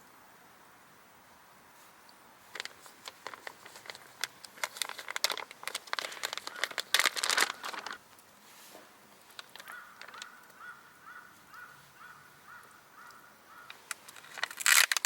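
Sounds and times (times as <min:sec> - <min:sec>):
crinkly material crumpling: 0:01.8 - 0:10.6, 0:13.7 - 0:15.0.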